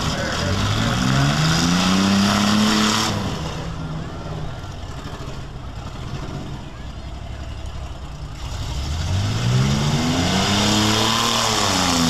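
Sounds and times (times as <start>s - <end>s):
engine revving hard: 0.0s - 3.7s, 8.4s - 12.0s.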